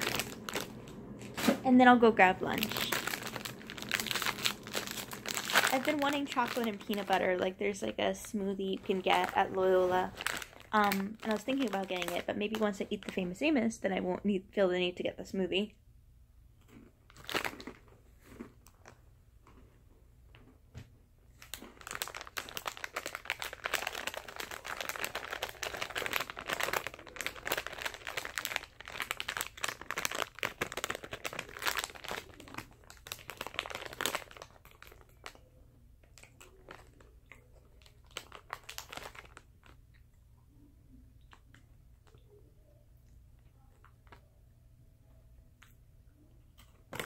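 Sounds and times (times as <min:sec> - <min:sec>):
plastic wrapper crinkling: 0:00.0 - 0:13.4, 0:16.6 - 0:19.7, 0:21.4 - 0:40.2, 0:43.4 - 0:44.3.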